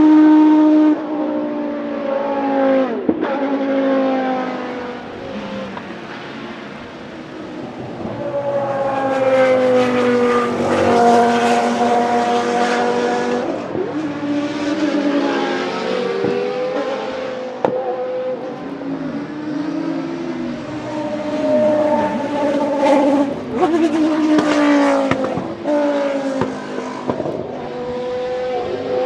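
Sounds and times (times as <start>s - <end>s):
racing cars passing: 0.0s - 29.0s.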